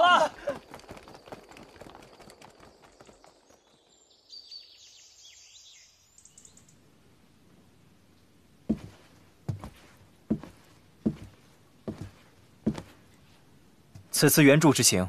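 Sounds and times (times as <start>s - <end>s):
faint bird chirps: 2.6s - 7.0s.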